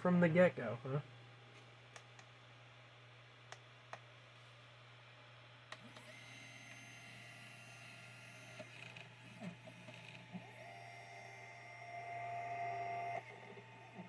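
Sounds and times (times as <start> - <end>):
printer low hum: 5.6 - 14.0
high whining printer tones: 5.8 - 14.0.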